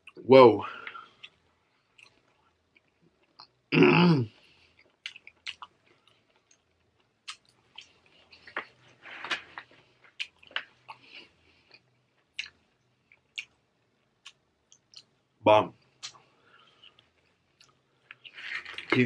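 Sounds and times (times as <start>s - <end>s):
person chewing: 0.8s - 3.6s, 4.4s - 15.1s, 16.0s - 19.0s
wet mouth clicks and smacks: 5.0s - 5.7s, 6.3s - 8.7s, 12.4s - 13.6s, 16.0s - 16.2s.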